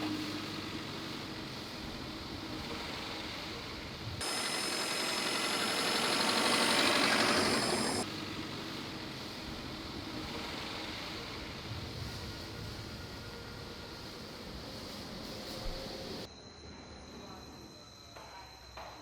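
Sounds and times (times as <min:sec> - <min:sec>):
loud rushing hiss: 0:00.7 - 0:12.7
car engine idling: 0:04.2 - 0:08.0.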